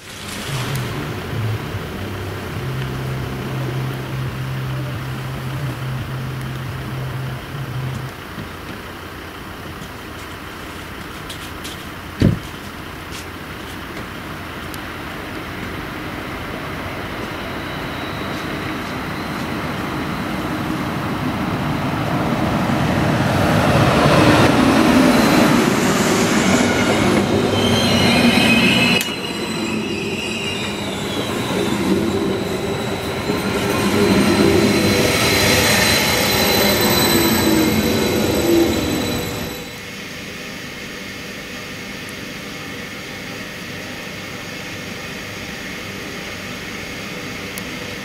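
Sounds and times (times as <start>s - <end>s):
train wheels rumbling on rails: 0.0s - 40.1s
high wheel squeals: 15.4s - 40.0s.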